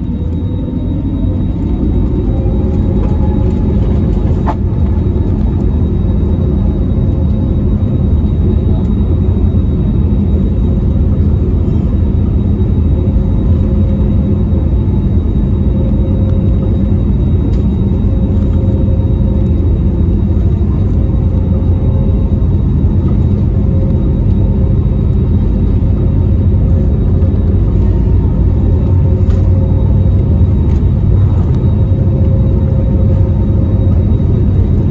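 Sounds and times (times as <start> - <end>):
faint steady whine: 0.0 - 34.9
jet engines low rumble: 0.0 - 34.9.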